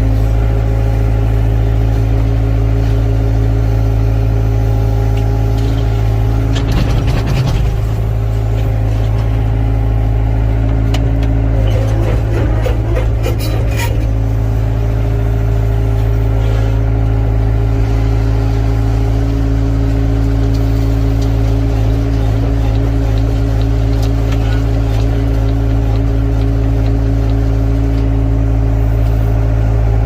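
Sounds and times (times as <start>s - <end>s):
excavator diesel engine running: 0.0s - 30.0s
clanks and knocks: 6.5s - 8.0s, 10.9s - 14.2s.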